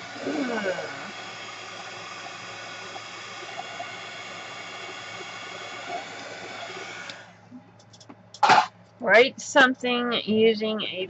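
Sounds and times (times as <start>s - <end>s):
heat gun running: 0.0s - 7.4s.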